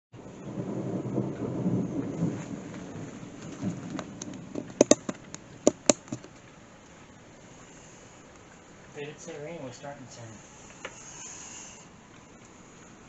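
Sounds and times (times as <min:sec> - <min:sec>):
thunder rumbling: 0:00.1 - 0:07.4
steady rain: 0:00.2 - 0:13.0
sharp taps: 0:04.6 - 0:06.3.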